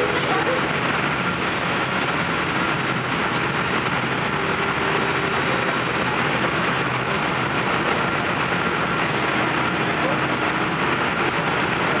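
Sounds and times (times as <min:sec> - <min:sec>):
train running in a tunnel: 0:00.0 - 0:12.0.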